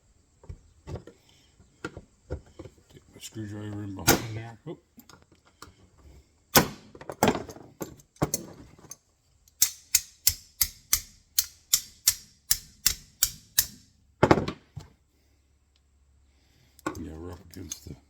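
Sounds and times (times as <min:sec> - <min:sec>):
metal tapping: 0:09.5 - 0:13.8.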